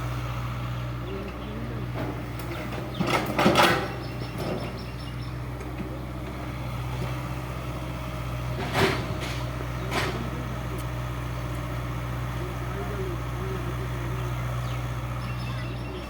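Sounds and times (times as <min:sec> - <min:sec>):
heavy machinery engine running: 0:00.0 - 0:16.0
loud clattering knocks: 0:01.9 - 0:05.0.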